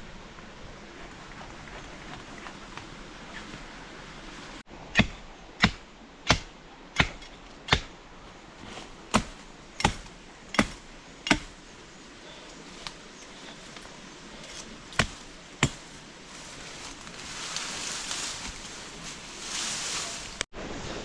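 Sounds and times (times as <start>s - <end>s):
blade chopping wood: 5.0s - 7.9s, 9.1s - 11.6s, 14.9s - 15.9s.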